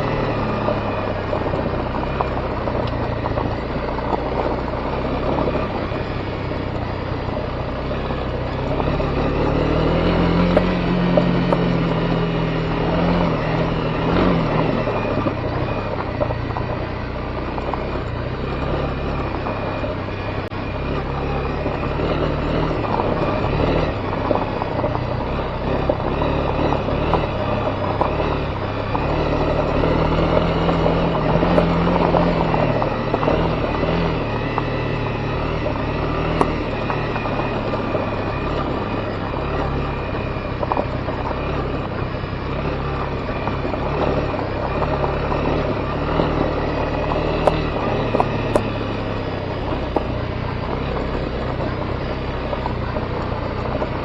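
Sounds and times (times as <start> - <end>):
motorcycle engine running: 0.0 - 54.0
tyre and wind noise: 0.0 - 54.0.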